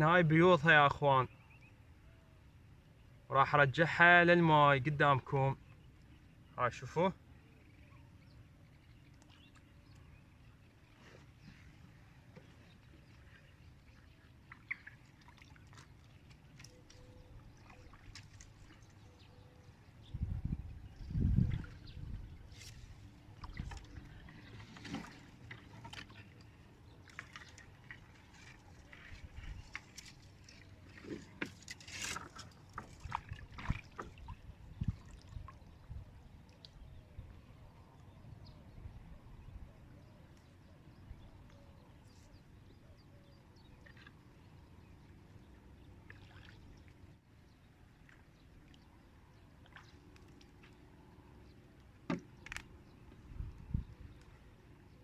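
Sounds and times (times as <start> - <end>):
small clicks and chirps: 9.1 - 10.1, 51.8 - 53.2
water sloshing and dripping: 10.8 - 20.0, 21.1 - 36.9, 45.9 - 47.2, 47.8 - 51.2.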